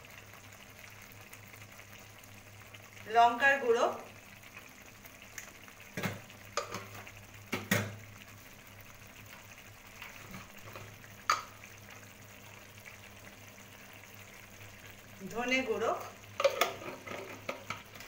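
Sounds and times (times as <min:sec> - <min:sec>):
paste frying with faint sizzle: 0:00.0 - 0:18.0
kitchen utensils clinking: 0:16.4 - 0:17.8.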